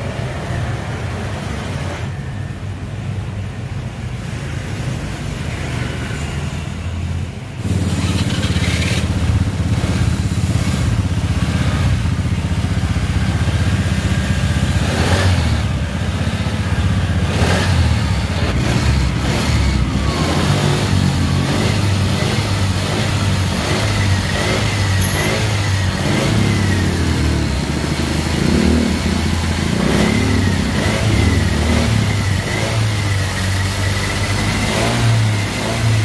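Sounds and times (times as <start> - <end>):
scooter engine running: 6.8 - 36.0.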